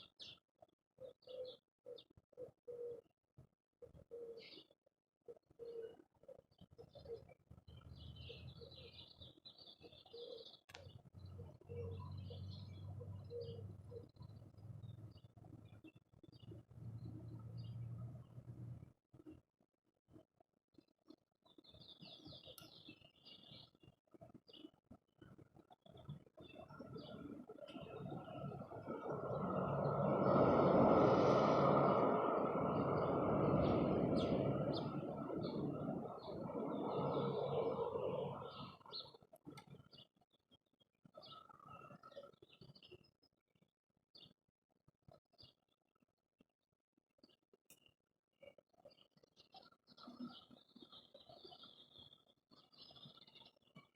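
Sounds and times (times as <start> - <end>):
dove-like cooing: 1.0 - 3.1, 3.9 - 4.6, 5.3 - 7.3, 10.1 - 10.6, 11.4 - 14.3, 27.0 - 38.9
small birds twittering: 1.0 - 3.1, 3.8 - 18.5, 21.4 - 24.8, 25.6 - 40.2, 41.1 - 43.2, 48.4 - 53.9
vehicle passing by: 16.8 - 18.8, 28.0 - 38.7.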